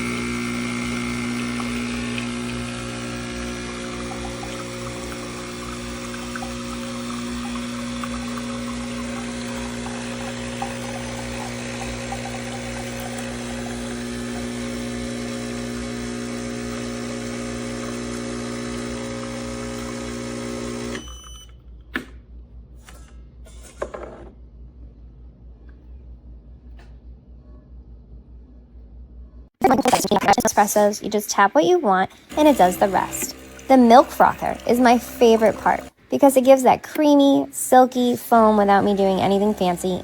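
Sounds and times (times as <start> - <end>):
espresso machine pump humming: 0.0 - 21.1, 32.1 - 40.0.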